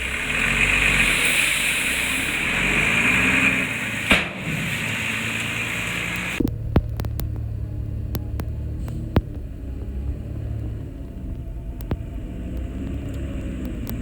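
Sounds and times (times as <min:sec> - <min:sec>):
diesel engine running loudly: 0:00.0 - 0:14.0
low throbbing hum: 0:00.0 - 0:14.0
sharp knock: 0:04.1 - 0:05.2
sharp clicks and knocks: 0:04.1 - 0:09.5, 0:11.3 - 0:14.0.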